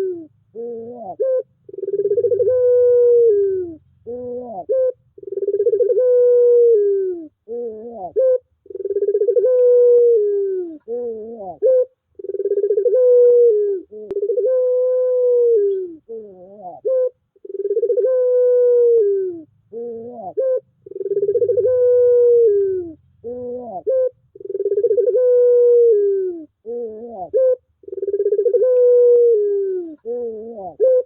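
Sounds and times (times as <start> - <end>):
dove cooing: 0.0 - 31.0.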